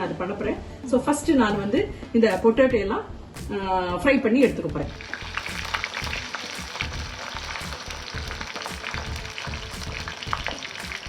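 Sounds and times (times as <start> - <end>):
fries deep-frying in hot oil: 4.9 - 11.0.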